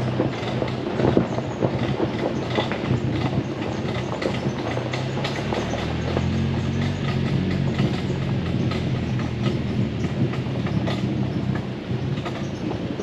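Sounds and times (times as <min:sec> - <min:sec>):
vehicle clicks and knocks on ruts: 0:00.0 - 0:13.0
car engine running: 0:05.1 - 0:12.0.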